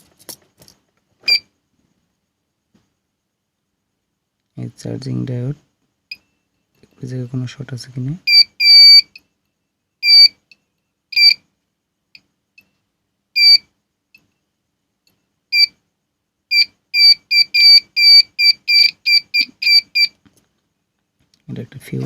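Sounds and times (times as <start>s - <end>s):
multimeter buzzer beeping: 8.2s - 9.2s, 10.0s - 10.3s, 11.1s - 11.4s, 13.4s - 13.6s, 15.5s - 15.7s, 16.5s - 20.2s.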